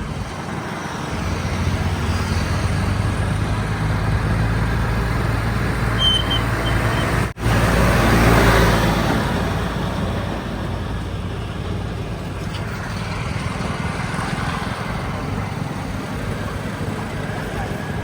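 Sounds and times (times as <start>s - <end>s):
heavy diesel engine running: 0.0s - 18.0s.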